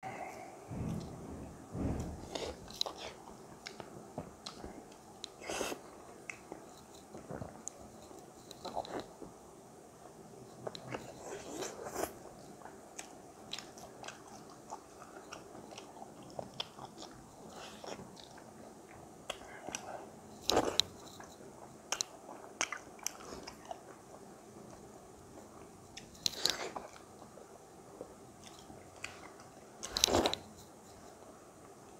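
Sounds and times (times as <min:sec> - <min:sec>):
person chewing and smacking: 0:10.6 - 0:21.3, 0:21.9 - 0:24.9.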